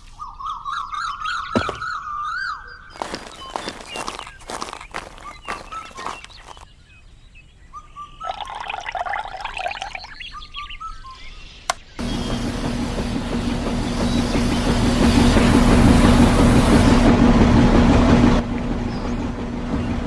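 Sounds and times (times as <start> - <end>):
birds chirping: 0.0 - 17.1
small motor humming: 12.0 - 17.1.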